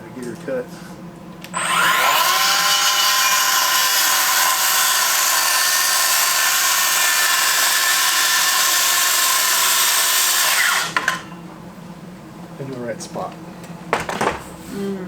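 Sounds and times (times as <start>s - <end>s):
electric saw cutting wood: 1.5s - 11.3s.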